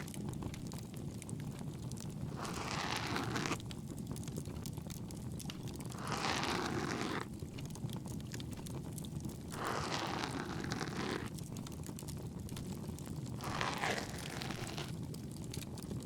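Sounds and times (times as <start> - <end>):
bonfire crackling: 0.0 - 16.0
ear pick scratching: 2.3 - 3.6, 5.9 - 7.3, 9.5 - 11.4, 13.4 - 15.0.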